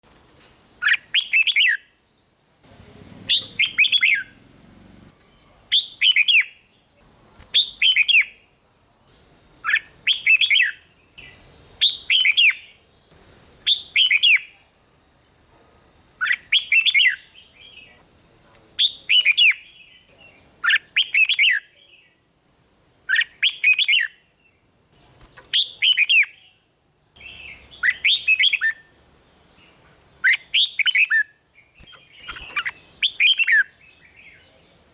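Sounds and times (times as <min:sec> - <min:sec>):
bird singing warbling phrases: 0:00.8 - 0:01.8, 0:02.7 - 0:08.4, 0:09.4 - 0:12.8, 0:13.7 - 0:14.8, 0:16.2 - 0:18.0, 0:18.7 - 0:22.2, 0:23.1 - 0:26.6, 0:27.2 - 0:28.9, 0:29.5 - 0:34.8.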